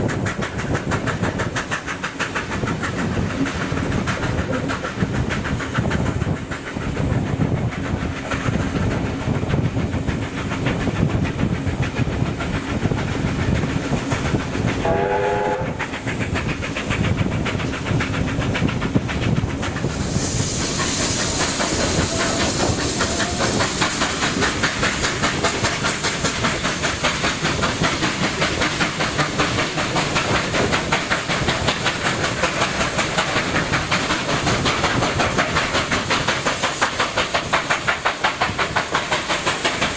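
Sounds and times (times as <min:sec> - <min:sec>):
hiss of steam: 0:00.0 - 0:39.9
steam locomotive exhaust beat: 0:00.0 - 0:39.9
steam locomotive whistle: 0:14.8 - 0:15.8.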